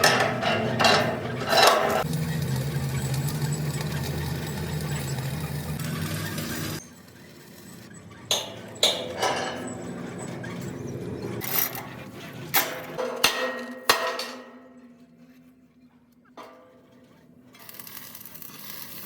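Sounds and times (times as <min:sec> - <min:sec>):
metallic knocks and clanks: 0:00.0 - 0:02.1, 0:08.3 - 0:15.1, 0:16.4 - 0:17.2
machinery running: 0:00.0 - 0:13.2.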